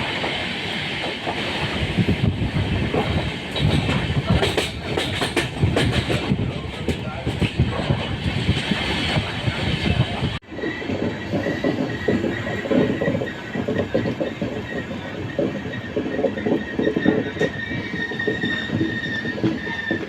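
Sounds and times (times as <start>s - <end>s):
train wheels clattering on track: 0.0s - 20.0s
high-pitched wheel squeal: 14.4s - 20.0s.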